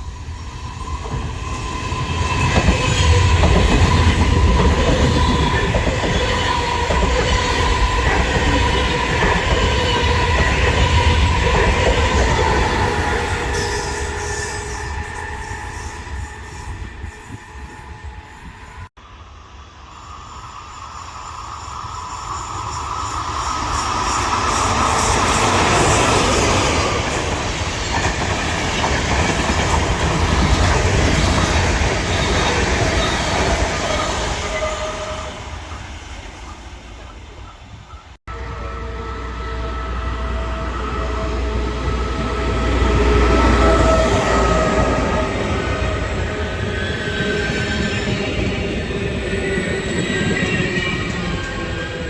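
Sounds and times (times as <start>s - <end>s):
train passing: 0.0s - 52.0s.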